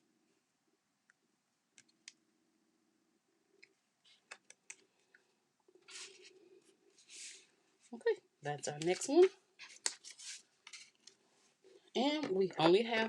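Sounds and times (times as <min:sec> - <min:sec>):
paper rustle: 0:05.8 - 0:06.4, 0:08.9 - 0:11.1.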